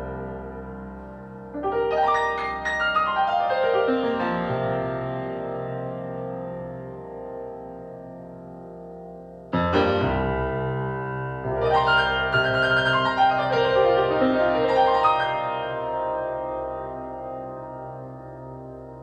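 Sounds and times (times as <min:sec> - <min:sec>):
piano-like keyboard playing: 0:00.0 - 0:19.0.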